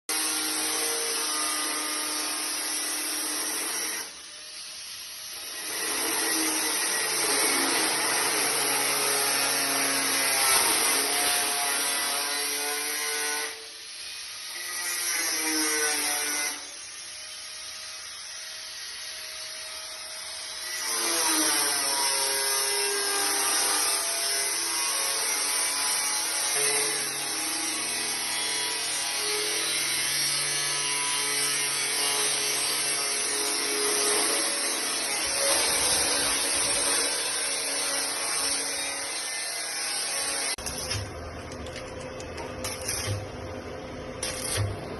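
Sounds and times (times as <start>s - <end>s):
power tool whining on metal: 0.1s - 43.3s.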